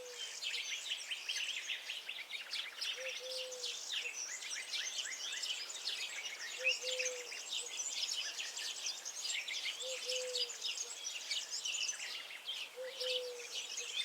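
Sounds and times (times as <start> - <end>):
chorus of songbirds: 0.0 - 14.0.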